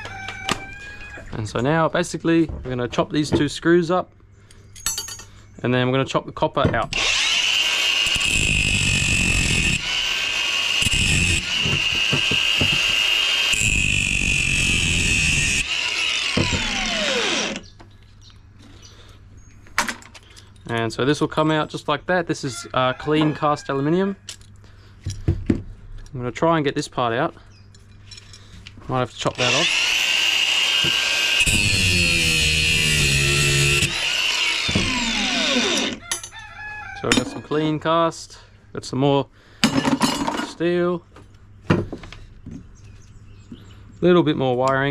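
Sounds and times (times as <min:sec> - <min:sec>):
angle grinder cutting metal: 0:06.9 - 0:17.7, 0:29.3 - 0:36.0.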